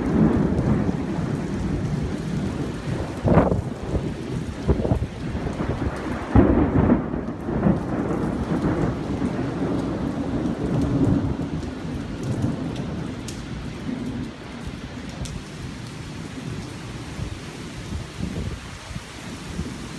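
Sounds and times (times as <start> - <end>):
thunder clap and rumble: 0.0 - 18.9
rain hissing: 0.0 - 19.9.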